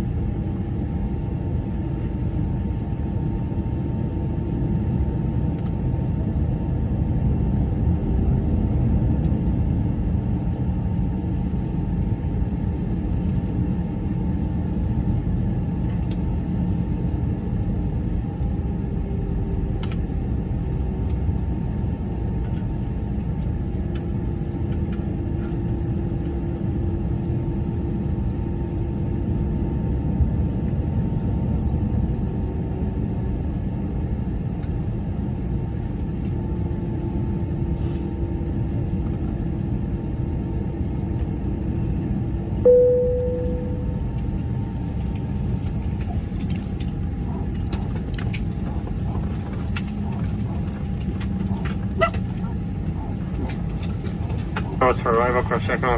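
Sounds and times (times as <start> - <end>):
aircraft cabin engine rumble: 0.0 - 55.9
faint steady tone: 42.6 - 44.2.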